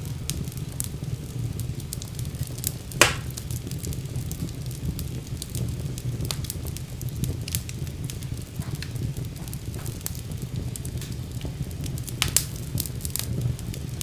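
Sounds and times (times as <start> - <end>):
fire crackling: 0.0 - 14.0
low steady rumble: 0.0 - 14.0
loud sharp pop: 3.0 - 3.4.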